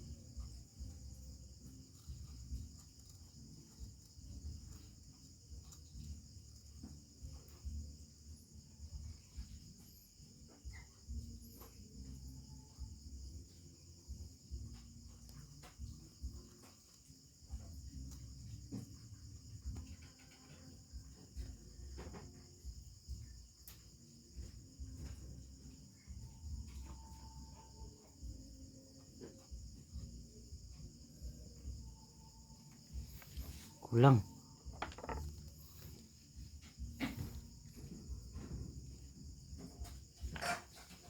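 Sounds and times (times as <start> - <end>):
crickets chirring: 0.0 - 41.0
handling clicks and knocks: 34.7 - 35.8.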